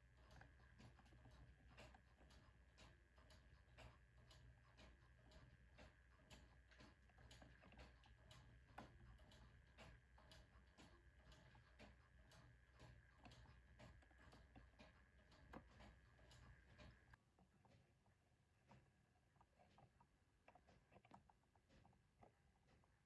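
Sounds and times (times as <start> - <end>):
wooden clock ticking: 0.2 - 17.2.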